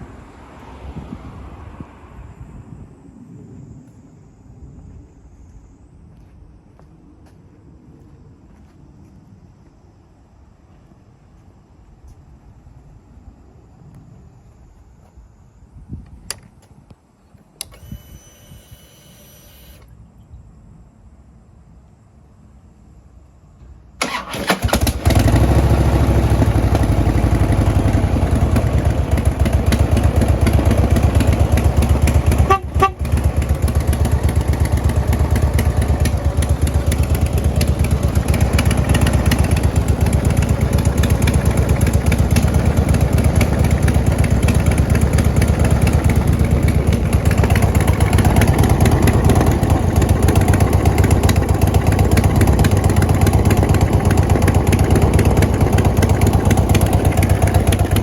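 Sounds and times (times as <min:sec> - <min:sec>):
motorcycle engine starting and idling: 0:17.3 - 0:20.0, 0:24.0 - 0:58.0.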